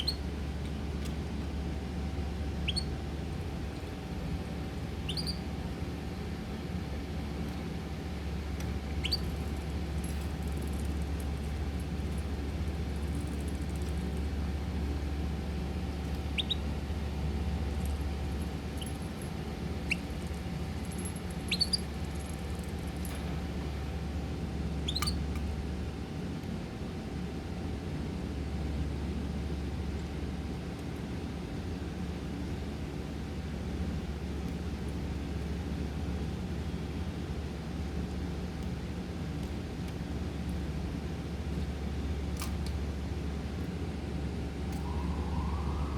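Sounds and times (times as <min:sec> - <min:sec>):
small birds chirping: 0:00.0 - 0:00.2, 0:02.6 - 0:03.0, 0:05.0 - 0:05.4, 0:09.0 - 0:09.4, 0:16.2 - 0:16.7, 0:19.8 - 0:20.3, 0:21.4 - 0:21.9, 0:24.9 - 0:25.2
steady low hum: 0:00.0 - 0:45.9.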